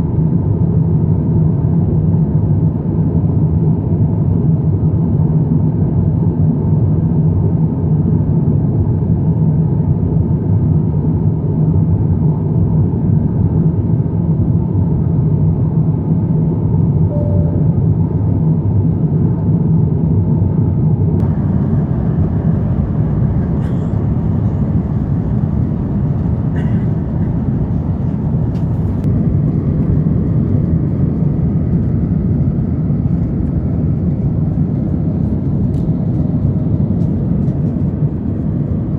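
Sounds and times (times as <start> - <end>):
aircraft engines rumbling: 17.8 - 38.9.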